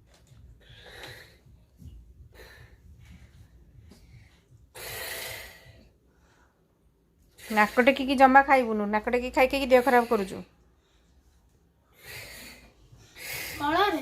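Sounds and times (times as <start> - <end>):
person breathing noisily: 0.6 - 6.7, 11.8 - 14.0.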